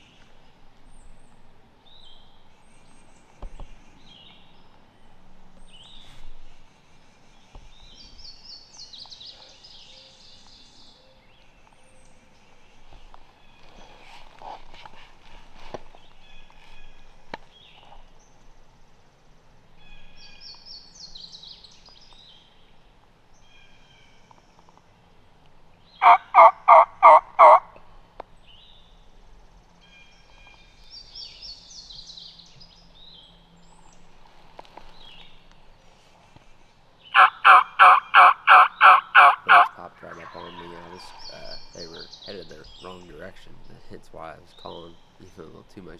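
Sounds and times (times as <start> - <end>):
songbirds trilling faintly: 0.0 - 45.9
turkey hen yelps: 26.0 - 27.8, 37.2 - 41.2.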